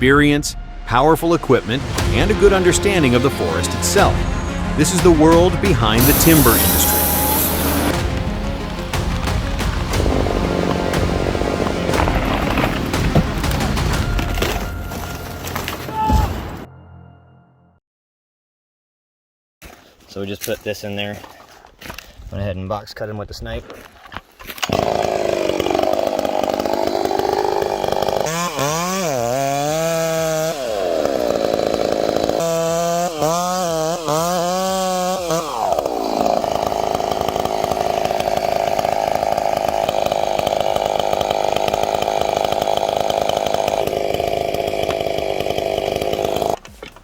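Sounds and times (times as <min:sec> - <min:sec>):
chainsaw cutting tree: 0:01.7 - 0:15.9, 0:24.6 - 0:47.0.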